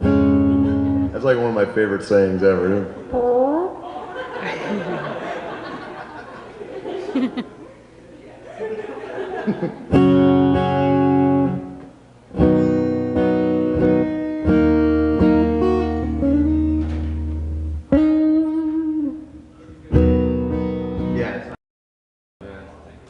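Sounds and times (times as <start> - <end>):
acoustic guitar chords strummed: 0.0 - 1.6, 9.9 - 21.4.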